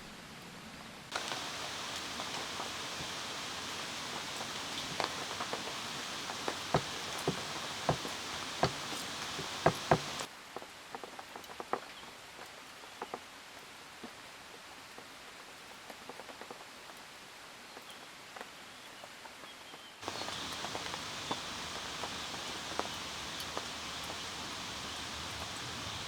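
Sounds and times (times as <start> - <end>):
steady rain hiss: 0.1 - 19.4, 20.0 - 26.0
dripping: 1.1 - 10.3, 20.0 - 26.0
heavy drops tapping on a surface: 1.2 - 10.3.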